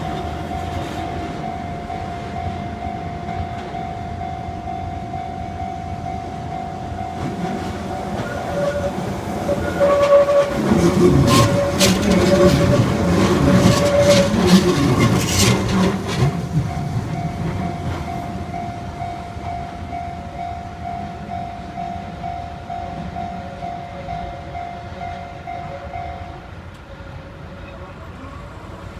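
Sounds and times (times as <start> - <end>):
crossing warning bell: 0.0 - 28.9
train wheels clattering: 7.1 - 19.8.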